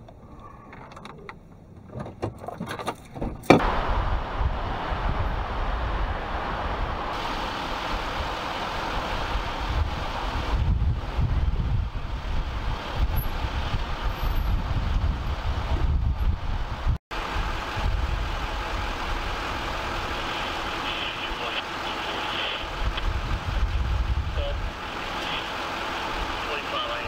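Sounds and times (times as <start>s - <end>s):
wind noise on microphone: 3.2s - 21.2s, 22.3s - 25.4s
large vehicle engine idling: 17.2s - 27.0s.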